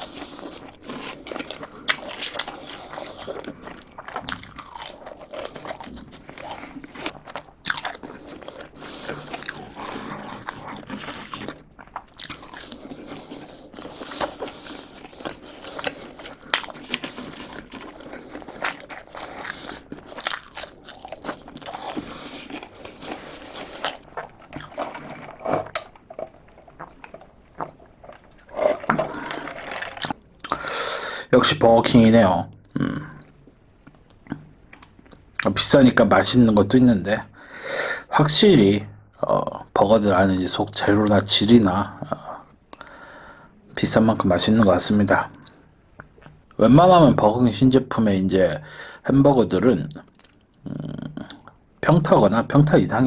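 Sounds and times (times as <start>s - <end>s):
chewing crunchy fried food: 0.0s - 30.7s, 45.4s - 46.6s, 50.1s - 51.6s.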